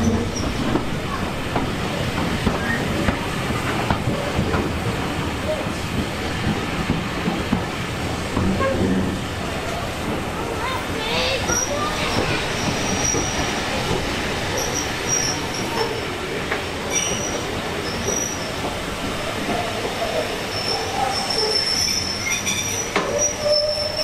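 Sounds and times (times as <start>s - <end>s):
wheels rumbling on rails: 0.0s - 24.0s
high-pitched wheel squeal: 20.6s - 24.0s.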